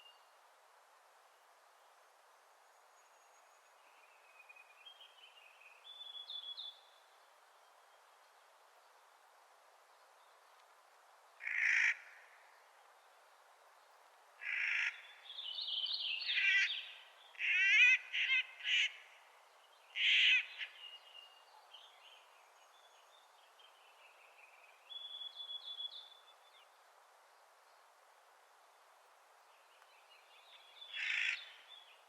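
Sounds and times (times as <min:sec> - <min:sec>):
harsh grating bird calls: 0:30.9 - 0:31.6.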